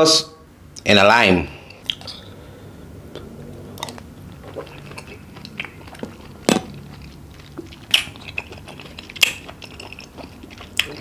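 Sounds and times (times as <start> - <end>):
person chewing: 1.7 - 2.4, 3.1 - 11.0
mouth smacks and clicks: 1.8 - 2.3, 3.1 - 11.0.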